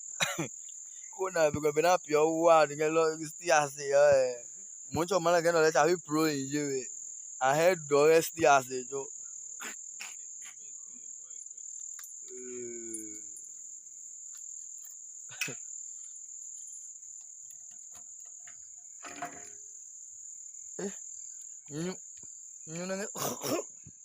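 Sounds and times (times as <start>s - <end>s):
crickets chirring: 0.0s - 24.0s
person's voice: 1.2s - 4.4s, 5.0s - 6.8s, 7.4s - 9.0s, 21.7s - 22.0s, 22.7s - 23.6s.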